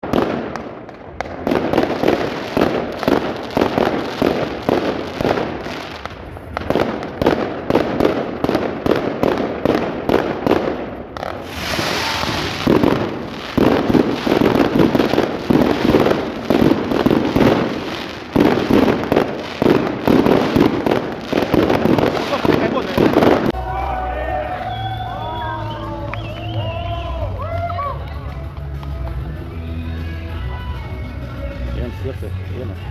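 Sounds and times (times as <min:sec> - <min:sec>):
fireworks banging and crackling: 0:00.0 - 0:23.6
fireworks hiss: 0:11.2 - 0:23.5.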